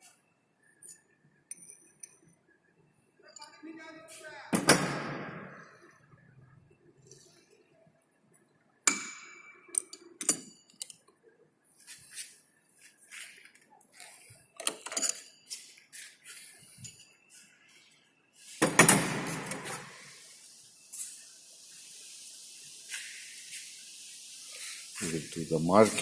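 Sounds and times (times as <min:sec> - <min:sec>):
metal tools clinking: 0:14.0 - 0:15.8.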